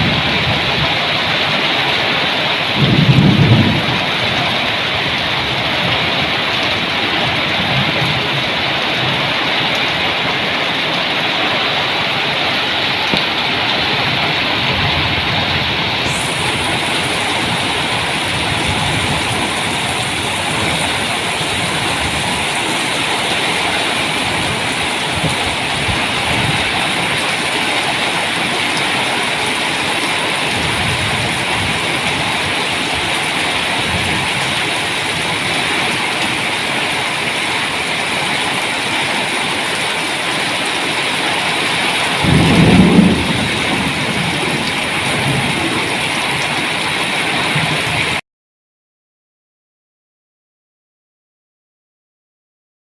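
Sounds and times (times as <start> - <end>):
heavy rain falling: 0.0 - 48.2
low rumble of thunder: 2.8 - 6.3, 14.0 - 23.0, 42.2 - 46.1.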